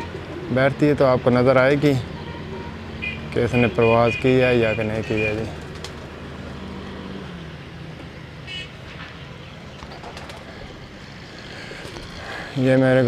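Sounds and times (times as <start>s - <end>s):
distant traffic hum: 0.0s - 13.0s
low engine drone: 5.1s - 12.7s.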